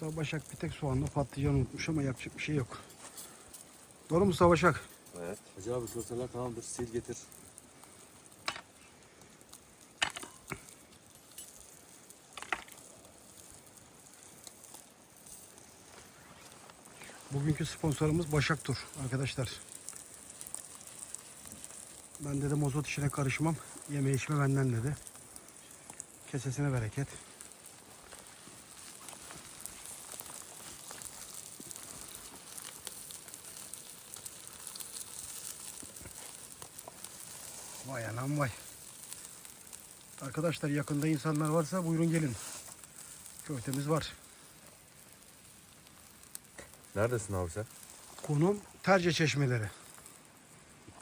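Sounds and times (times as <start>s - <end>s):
fire crackles and pops: 0.0s - 51.0s
meat sizzling on a grill: 0.0s - 51.0s.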